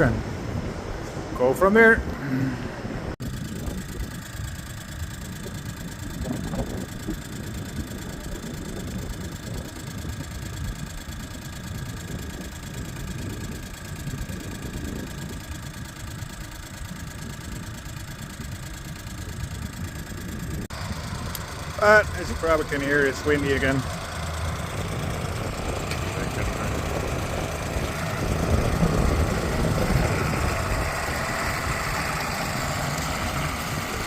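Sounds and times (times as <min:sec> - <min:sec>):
barn machinery humming: 0:02.8 - 0:34.0.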